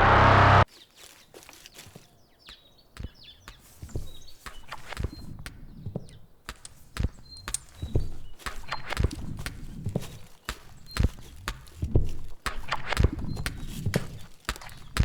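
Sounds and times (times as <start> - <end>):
loud music: 0.0 - 0.6
scattered knocks and low thuds: 3.0 - 15.0.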